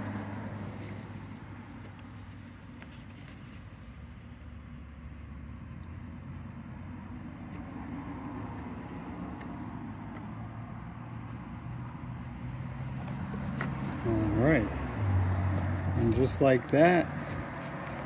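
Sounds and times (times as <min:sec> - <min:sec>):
rubber seal rubbing and scraping: 0:12.1 - 0:14.4.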